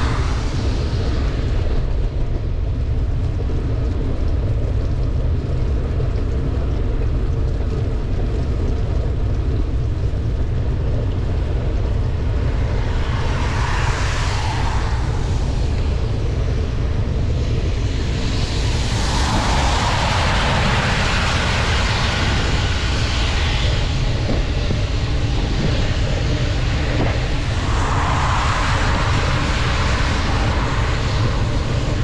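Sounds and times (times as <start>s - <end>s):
rain hissing: 0.0s - 32.0s
wet tyres on road: 0.0s - 32.0s
wind buffeting microphone: 0.0s - 32.0s.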